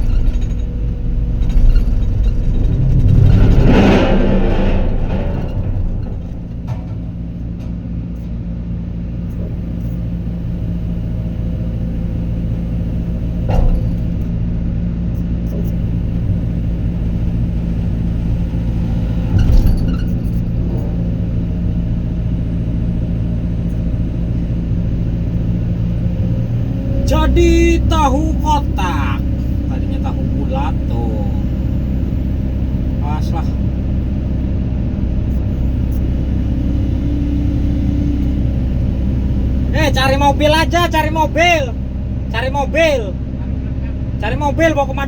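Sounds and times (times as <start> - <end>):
metallic knocks: 0.0 - 8.4
diesel construction equipment engine: 0.0 - 45.0.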